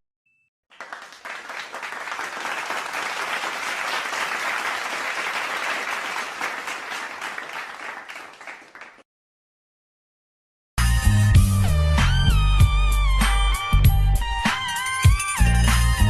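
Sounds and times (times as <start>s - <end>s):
crowd applause: 0.7s - 9.0s.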